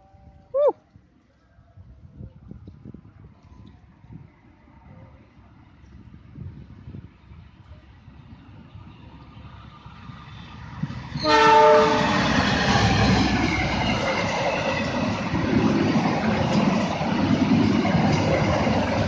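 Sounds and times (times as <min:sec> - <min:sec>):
train passing with rail noise: 0:00.0 - 0:19.0
train horn: 0:11.2 - 0:12.5.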